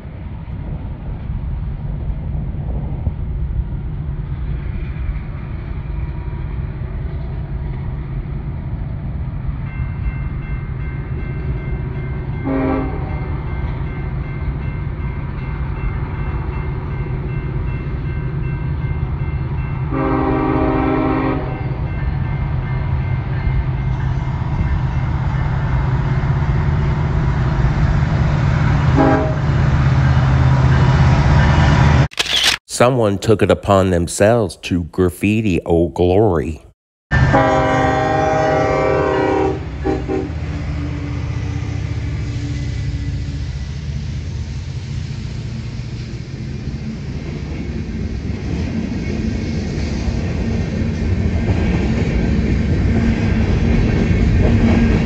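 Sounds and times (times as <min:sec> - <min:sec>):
train air horn blasts: 0:12.4 - 0:13.3, 0:19.9 - 0:21.7, 0:29.0 - 0:29.5, 0:37.2 - 0:40.4.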